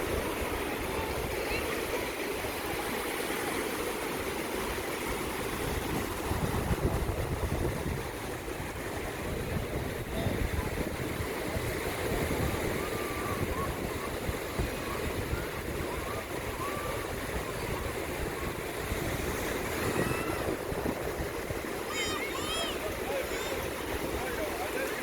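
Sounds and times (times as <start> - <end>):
surf washing on shore: 0.0 - 25.0
wind buffeting microphone: 5.2 - 24.6.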